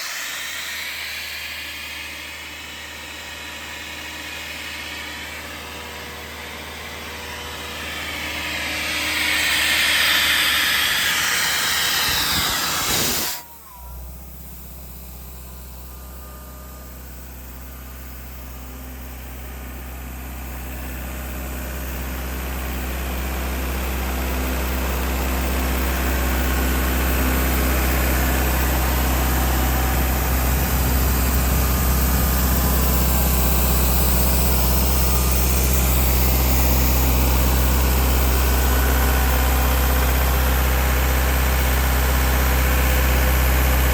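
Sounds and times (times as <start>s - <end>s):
diesel air compressor running: 0.0s - 43.9s
compressed air hissing: 7.6s - 13.5s.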